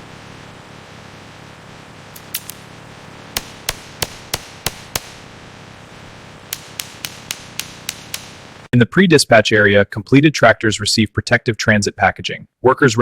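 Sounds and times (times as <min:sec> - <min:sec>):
low background noise: 0:00.0 - 0:10.1
sharp hammer knocks: 0:02.2 - 0:02.6, 0:03.4 - 0:05.2, 0:06.6 - 0:08.6.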